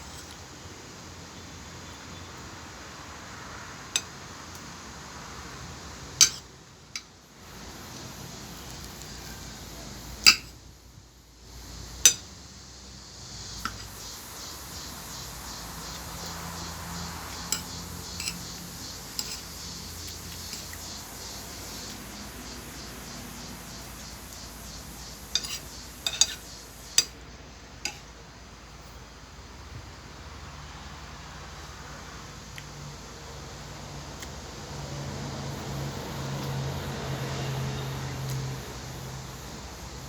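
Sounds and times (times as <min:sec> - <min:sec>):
steady background hiss: 0:00.0 - 0:40.0
cutlery clinking against a plate: 0:06.2 - 0:06.4, 0:10.3 - 0:10.5, 0:17.3 - 0:18.5, 0:19.1 - 0:19.4, 0:25.3 - 0:27.1.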